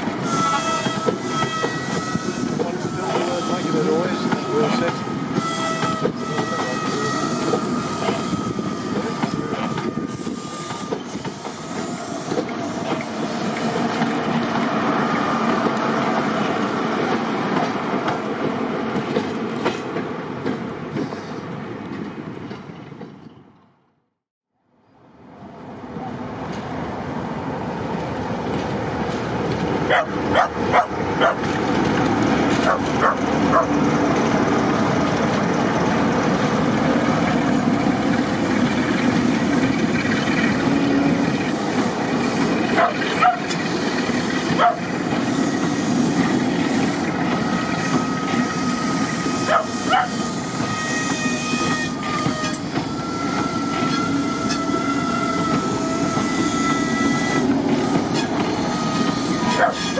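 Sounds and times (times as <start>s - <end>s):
diesel train rumbling past: 0.0s - 24.0s, 24.9s - 59.9s
high wheel squeal: 0.2s - 13.4s, 42.2s - 59.9s
wheels clicking over rail joints: 28.0s - 34.4s.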